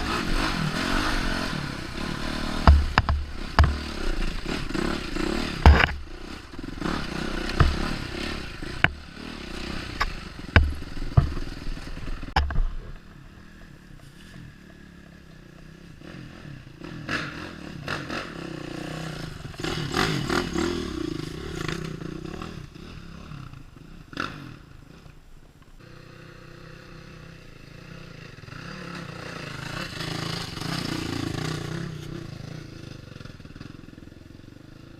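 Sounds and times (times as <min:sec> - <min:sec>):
motorcycle engine revving: 0:00.0 - 0:25.2, 0:25.8 - 0:34.9
sharp knocks and thumps: 0:02.5 - 0:04.2, 0:05.5 - 0:06.2, 0:07.4 - 0:09.1, 0:09.9 - 0:13.0.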